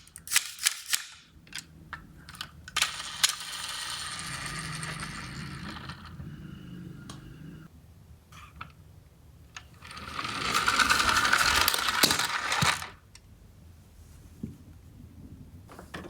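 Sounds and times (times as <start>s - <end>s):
toy car wheels clattering: 0.0s - 7.7s, 9.6s - 13.0s.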